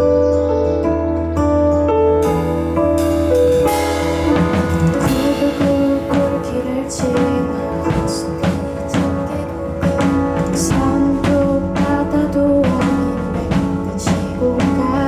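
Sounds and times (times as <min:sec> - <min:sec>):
keyboard chords: 0:00.0 - 0:15.0
drum kit beat: 0:02.2 - 0:15.0
cymbal crashes: 0:02.3 - 0:08.0.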